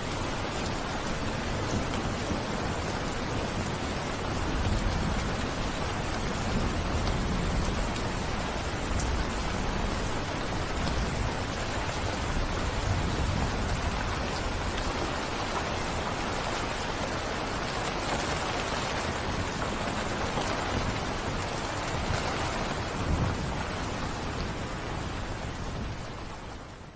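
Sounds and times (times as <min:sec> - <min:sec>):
heavy rain falling: 0:00.0 - 0:26.9.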